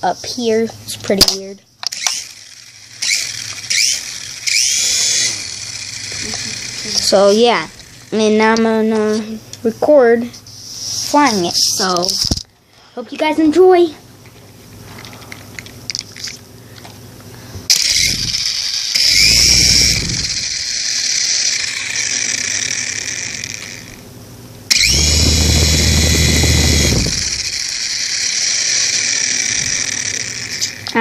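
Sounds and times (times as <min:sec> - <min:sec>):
toy helicopter motors whining: 0:01.2 - 0:09.3, 0:11.0 - 0:12.4, 0:17.7 - 0:24.0, 0:24.7 - 0:31.0
low rumble: 0:17.9 - 0:20.7.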